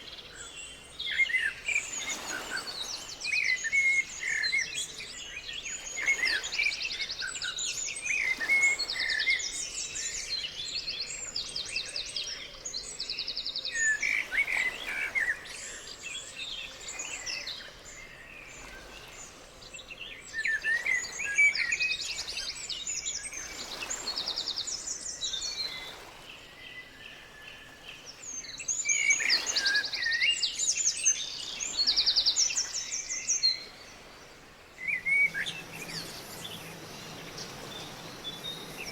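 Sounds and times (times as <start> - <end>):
small birds chirping and trilling: 34.8 - 38.9.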